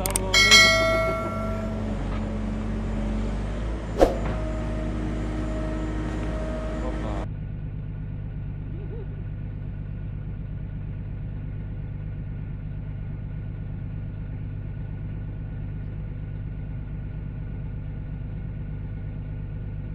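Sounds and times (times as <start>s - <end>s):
tractor engine running: 0.0s - 3.0s.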